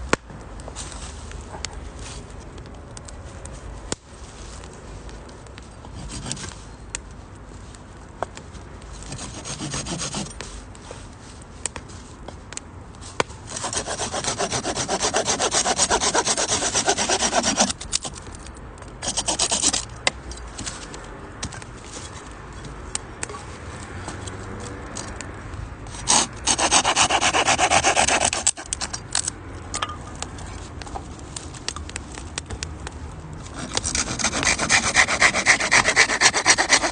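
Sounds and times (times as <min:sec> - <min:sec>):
wood fire crackling: 0:00.0 - 0:36.9
rasping strokes on wood: 0:09.0 - 0:10.4, 0:13.5 - 0:17.8, 0:19.0 - 0:19.8, 0:26.0 - 0:28.9, 0:33.5 - 0:36.9.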